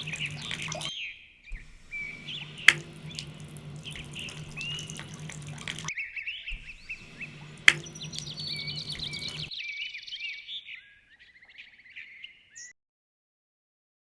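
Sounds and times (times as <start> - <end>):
background hum and hiss: 0.0 - 0.9, 1.6 - 5.9, 6.6 - 9.5
small birds chirping: 0.0 - 0.9, 1.6 - 5.9, 6.6 - 9.5.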